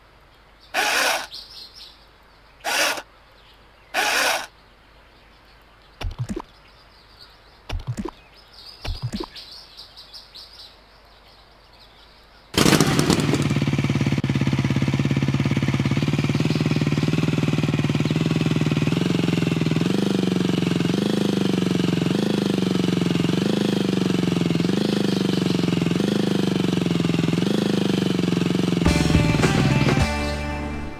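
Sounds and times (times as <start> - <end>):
toy electronic engine sound: 0.8 - 1.3, 2.6 - 3.0, 4.0 - 4.5
sharp clicks: 4.0 - 4.5, 6.0 - 6.5, 7.7 - 8.2, 8.8 - 9.4.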